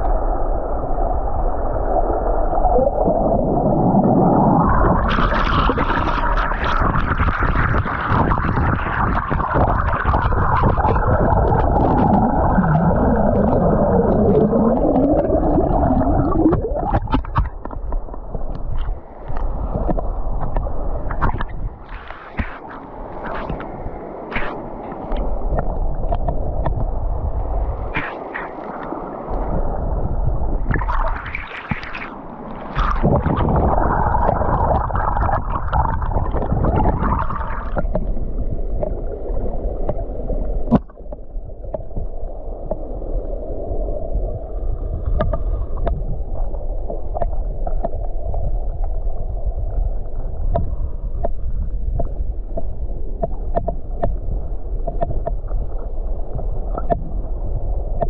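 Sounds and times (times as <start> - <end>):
muffled underwater river rush: 0.0 - 58.0
water splashing: 1.7 - 42.9.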